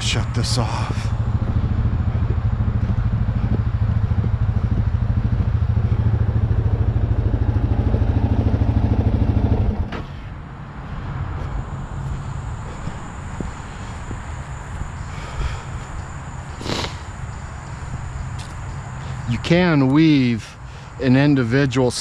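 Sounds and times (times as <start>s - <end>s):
engine shutting off with knock: 0.0s - 10.3s
engine idling: 0.0s - 21.3s
outdoor background noise: 0.0s - 22.0s.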